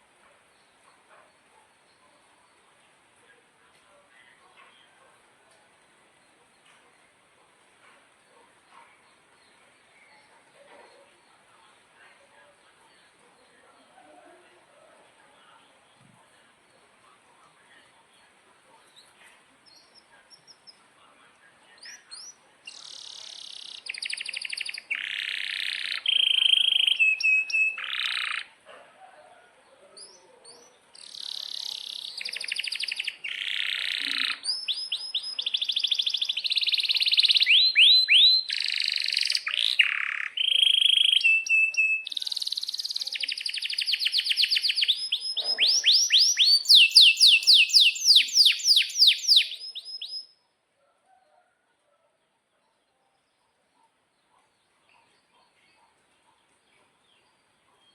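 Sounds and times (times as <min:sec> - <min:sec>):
canary singing: 0:21.7 - 0:28.6, 0:30.0 - 0:50.4.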